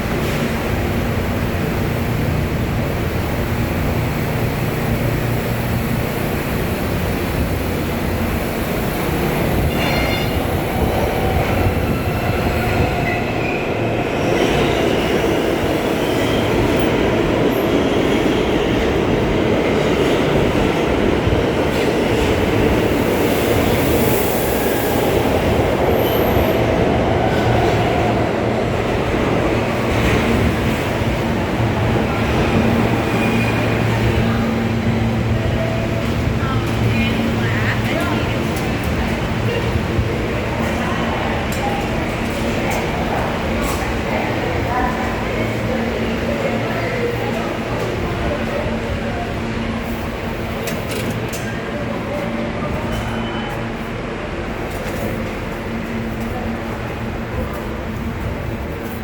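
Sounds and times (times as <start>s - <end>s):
subway train rumbling: 0.0s - 59.0s.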